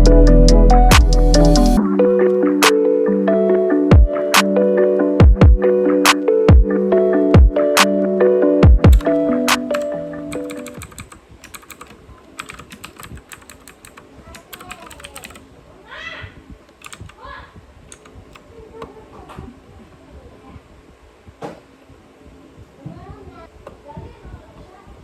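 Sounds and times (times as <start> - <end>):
typing on keyboard: 8.9 - 15.4, 16.8 - 17.2, 17.9 - 18.5
faint voices: 11.8 - 25.0.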